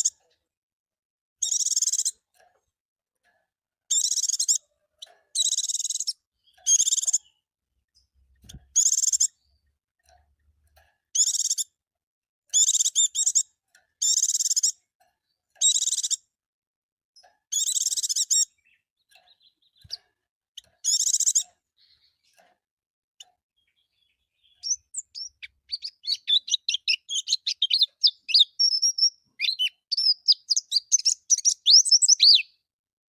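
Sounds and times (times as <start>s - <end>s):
bird warbling: 24.6s - 32.5s.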